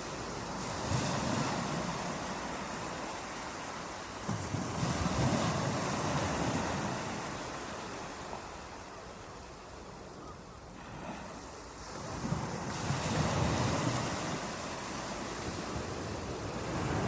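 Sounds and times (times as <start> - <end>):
ocean waves washing in: 10.8 - 17.0.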